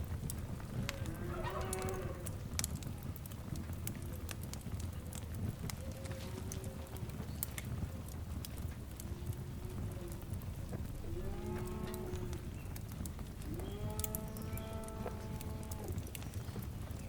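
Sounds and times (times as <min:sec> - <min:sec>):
fire crackling and popping: 0:00.0 - 0:17.0
lowing animal calls: 0:13.4 - 0:16.0.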